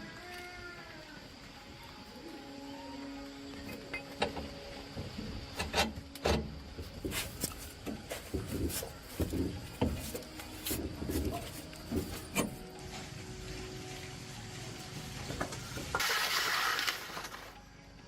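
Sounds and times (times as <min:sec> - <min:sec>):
clicks knocks and scraping: 0:03.8 - 0:12.7.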